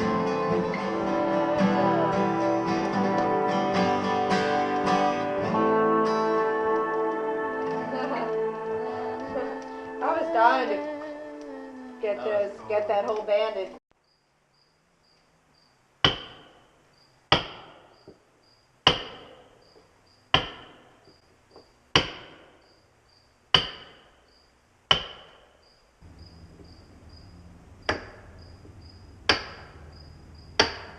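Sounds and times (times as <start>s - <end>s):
mallet striking caulking iron: 16.0s - 16.7s, 17.3s - 18.2s, 18.8s - 19.6s, 20.3s - 21.0s, 21.9s - 22.6s, 23.5s - 24.2s, 24.9s - 25.6s, 27.9s - 28.3s, 29.2s - 29.8s, 30.6s - 30.9s.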